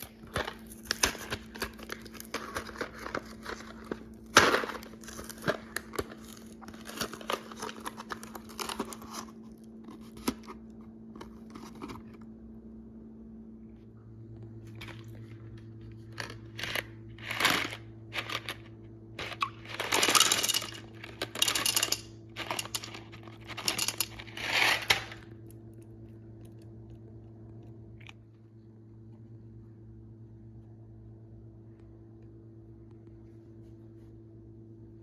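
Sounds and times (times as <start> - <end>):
candies rattling against plastic: 0.0 - 9.4, 16.0 - 25.3
steady low hum: 0.0 - 35.0.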